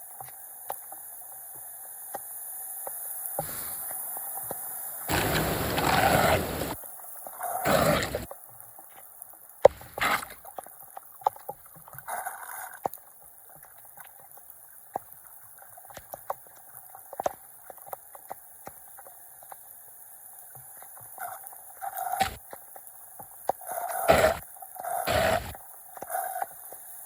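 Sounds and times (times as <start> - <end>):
floodwater gurgling and splashing: 5.1 - 6.8, 7.6 - 8.3.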